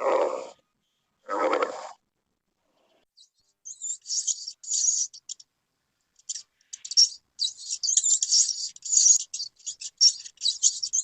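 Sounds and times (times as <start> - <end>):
small bird chirping: 2.8 - 5.6, 6.2 - 11.0.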